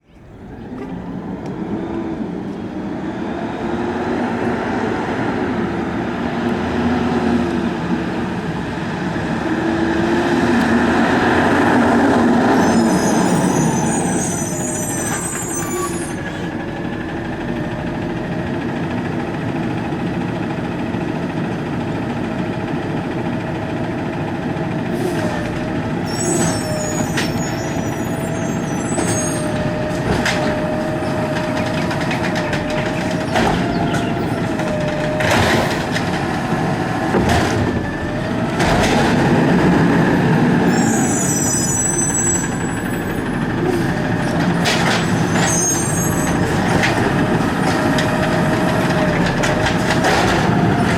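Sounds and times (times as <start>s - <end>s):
garbage truck engine running: 0.0s - 50.9s
high squeals: 12.4s - 16.6s, 26.0s - 34.9s, 40.6s - 49.1s.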